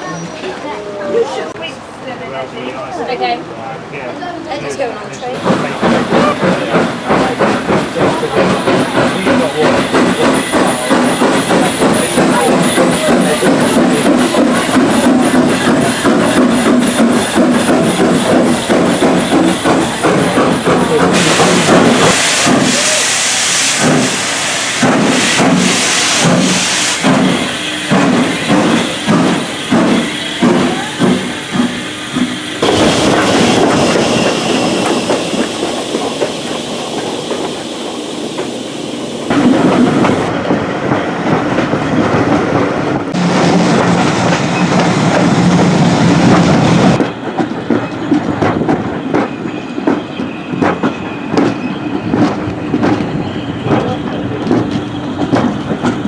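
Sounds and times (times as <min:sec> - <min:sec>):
steam hiss: 0:05.4 - 0:40.3
rhythmic steam locomotive beat: 0:05.4 - 0:56.0.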